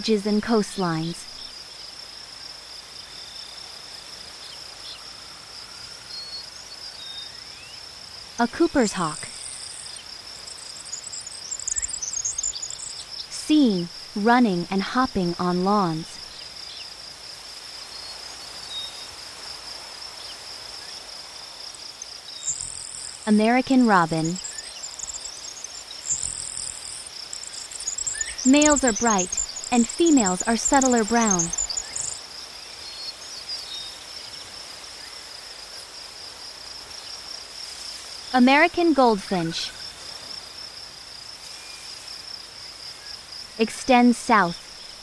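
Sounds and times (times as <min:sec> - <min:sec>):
insects trilling: 0:00.0 - 0:45.0.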